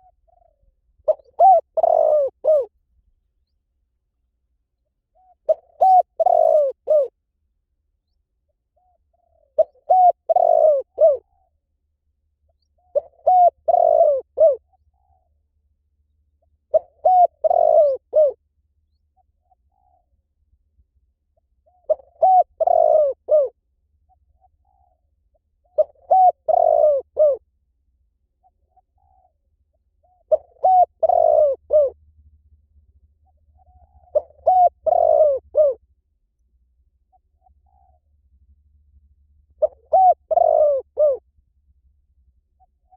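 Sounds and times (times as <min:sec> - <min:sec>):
dove cooing: 0:00.0 - 0:02.7, 0:05.2 - 0:07.2, 0:08.8 - 0:11.5, 0:12.7 - 0:15.3, 0:16.7 - 0:18.4, 0:19.4 - 0:20.1, 0:21.6 - 0:25.0, 0:25.6 - 0:27.4, 0:28.4 - 0:29.4, 0:30.0 - 0:32.0, 0:33.6 - 0:35.8, 0:37.1 - 0:38.0, 0:39.6 - 0:41.2.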